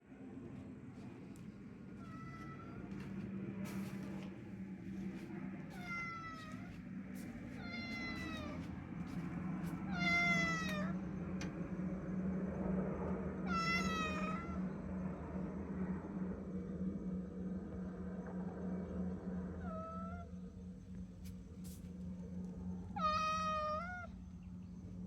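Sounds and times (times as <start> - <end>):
steady low hum: 0.0 - 25.0
cat meowing: 2.0 - 3.0, 5.8 - 6.7, 7.6 - 8.7, 9.9 - 11.0, 13.5 - 14.6, 23.0 - 24.1.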